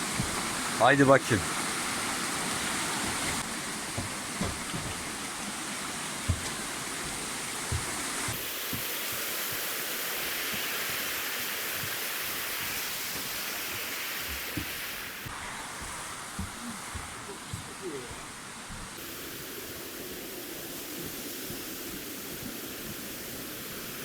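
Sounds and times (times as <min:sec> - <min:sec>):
flowing river water: 0:00.0 - 0:24.0
soft knocks: 0:03.1 - 0:05.2, 0:06.3 - 0:08.9, 0:14.2 - 0:19.0.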